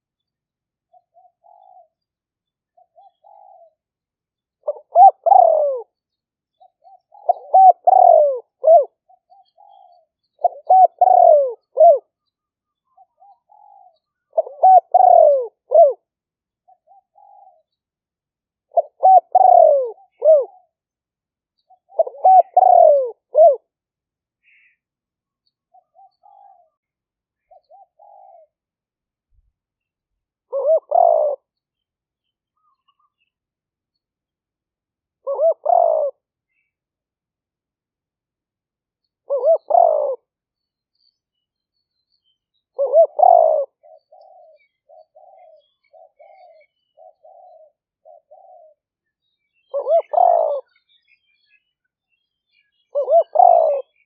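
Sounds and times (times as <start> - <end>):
dove cooing: 0.9 - 2.0, 2.7 - 3.8, 4.6 - 6.0, 6.6 - 17.8, 18.7 - 20.8, 21.6 - 23.7, 25.7 - 26.8, 27.4 - 28.6, 30.5 - 31.5, 35.2 - 36.7, 39.2 - 40.3, 42.7 - 48.8, 49.6 - 50.8, 52.9 - 54.0.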